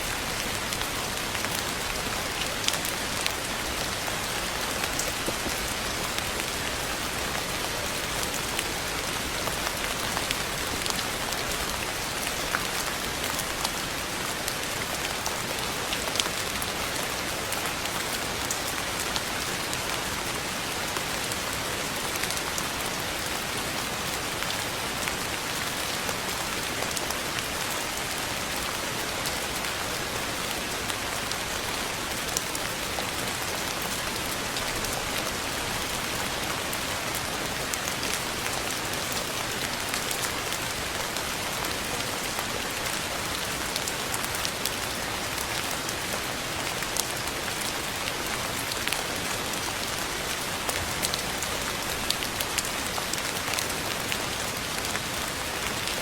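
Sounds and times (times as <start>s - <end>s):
rain falling on a surface: 0.0s - 56.0s.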